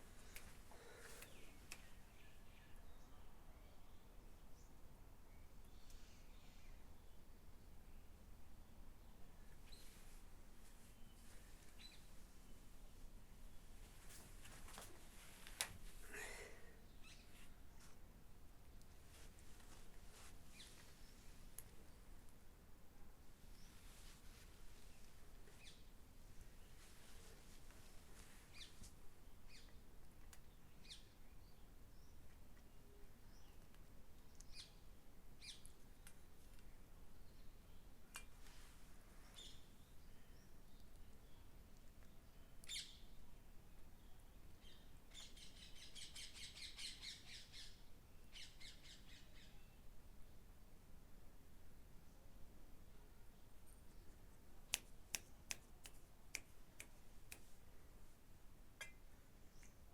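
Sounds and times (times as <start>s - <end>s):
faint low rumble and hiss: 0.0s - 59.9s
bird chirping: 10.9s - 12.6s, 16.9s - 17.4s, 24.9s - 26.9s, 30.4s - 32.7s, 39.2s - 43.2s, 44.0s - 49.8s.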